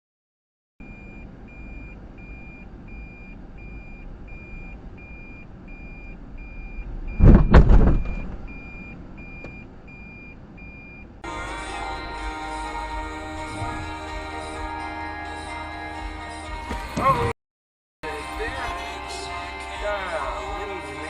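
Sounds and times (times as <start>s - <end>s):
electronic warning beeps: 0.8s - 7.4s, 8.0s - 11.1s
loud crash: 7.2s - 8.6s.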